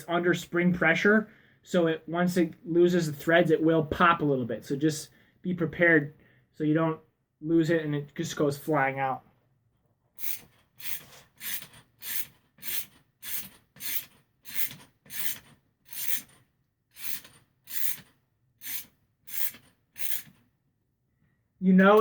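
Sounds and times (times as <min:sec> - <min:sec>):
ratchet wrench rasping: 0:10.2 - 0:20.4.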